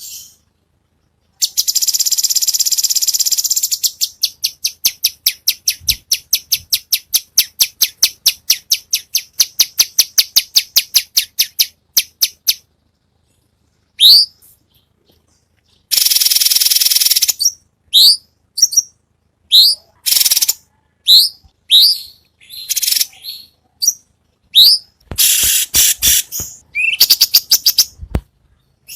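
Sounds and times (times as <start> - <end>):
buzzy bird trill: 0.0 - 0.5, 1.3 - 28.9
falling whistles and rapid trills: 19.5 - 28.0.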